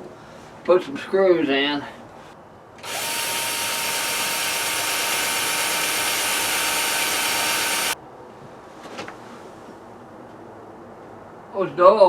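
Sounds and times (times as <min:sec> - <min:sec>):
power drill drilling sheet metal: 0:02.8 - 0:08.0.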